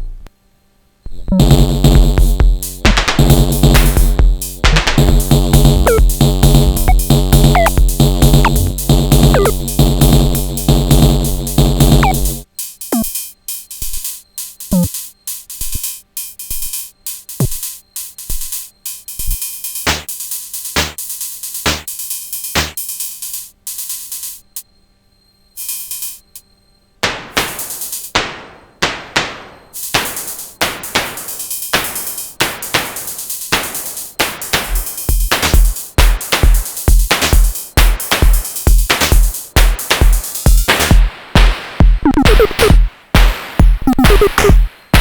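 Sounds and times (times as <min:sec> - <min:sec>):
techno drum machine pattern: 0:01.2 - 0:24.6, 0:29.8 - 0:45.0
heavy kick and bass: 0:01.4 - 0:12.4, 0:17.4 - 0:17.7, 0:34.6 - 0:45.0
hi-hat ticks: 0:01.4 - 0:24.7, 0:25.6 - 0:26.5, 0:27.1 - 0:28.2, 0:29.8 - 0:45.0.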